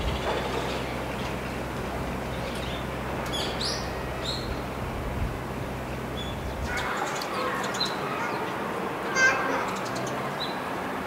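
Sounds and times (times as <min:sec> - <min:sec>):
vehicle engine idling: 0:00.0 - 0:07.0.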